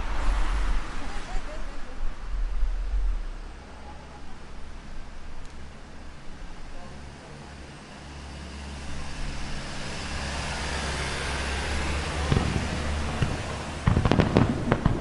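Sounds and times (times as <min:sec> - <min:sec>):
rushing noise: 0:00.0 - 0:05.4
fireworks bangs: 0:12.2 - 0:15.0.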